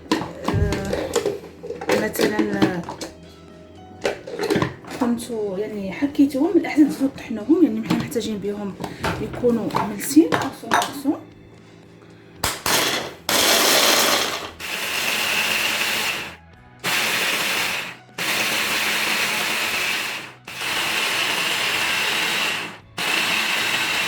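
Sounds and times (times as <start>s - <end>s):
electric blender grinding: 0.1s - 1.6s, 12.6s - 24.0s.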